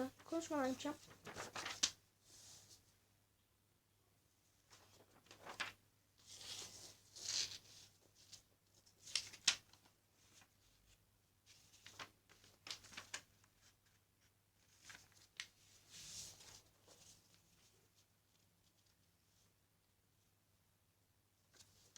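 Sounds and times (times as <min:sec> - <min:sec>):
paper rustling and creasing: 0:00.0 - 0:02.8, 0:04.7 - 0:14.0, 0:14.6 - 0:19.1.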